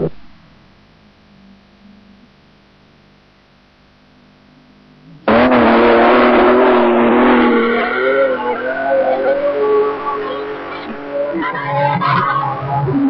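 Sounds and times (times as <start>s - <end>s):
faint hum: 0.0s - 13.0s
engine at high revs: 5.3s - 11.5s.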